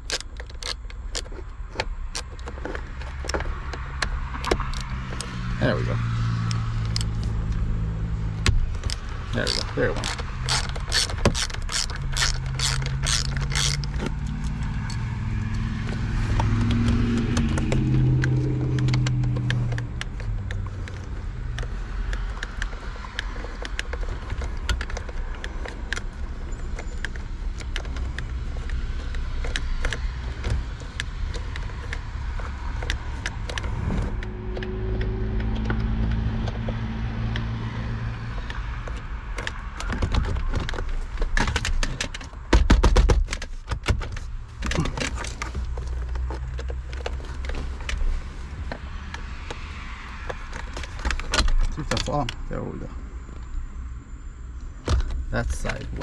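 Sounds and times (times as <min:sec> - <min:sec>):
hand tools ratchet clicking: 0:00.0 - 0:05.8, 0:06.4 - 0:07.7, 0:08.4 - 0:37.5.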